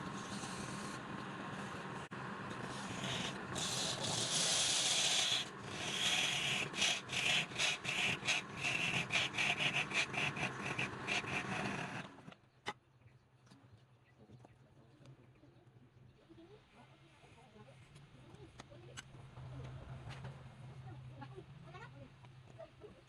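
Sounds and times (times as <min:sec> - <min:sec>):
sanding wood by hand: 0:02.7 - 0:12.0.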